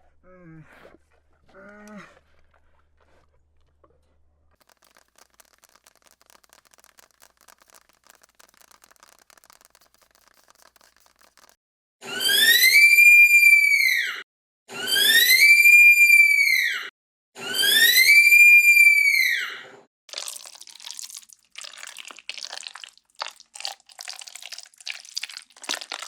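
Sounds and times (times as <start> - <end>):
faint rapid crackling: 4.6 - 11.6.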